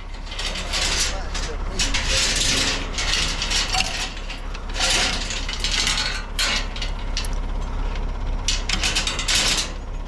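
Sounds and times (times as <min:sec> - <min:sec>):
backhoe engine idling: 0:00.0 - 0:10.0
metal chain rattling: 0:00.1 - 0:07.6.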